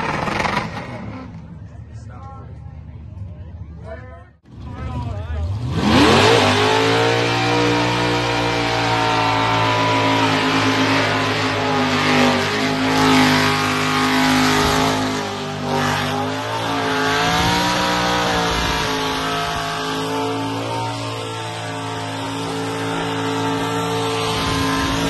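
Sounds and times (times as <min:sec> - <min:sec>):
car engine revving high: 0:05.5 - 0:25.0.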